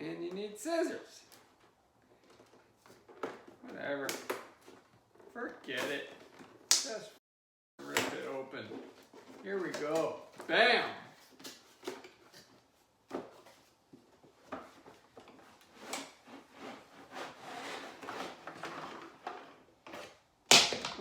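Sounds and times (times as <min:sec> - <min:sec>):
scraping and rustling: 0:07.8 - 0:10.5, 0:11.1 - 0:20.3.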